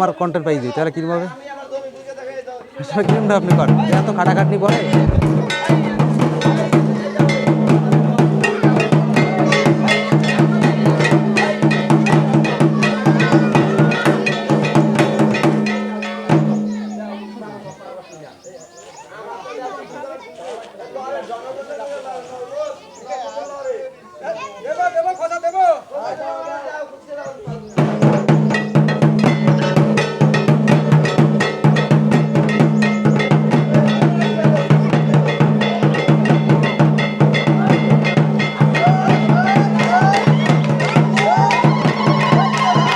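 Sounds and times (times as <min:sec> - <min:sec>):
drums beating fast rhythm: 0:02.8 - 0:19.2, 0:27.4 - 0:42.9
metallic clanging strikes: 0:03.5 - 0:17.8.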